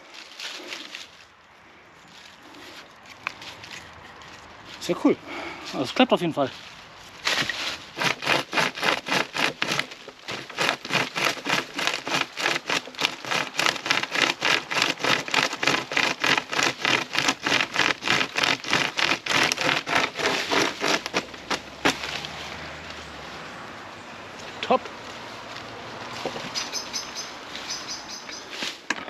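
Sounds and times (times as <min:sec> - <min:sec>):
saw chain rasping through wood: 0:07.3 - 0:21.6.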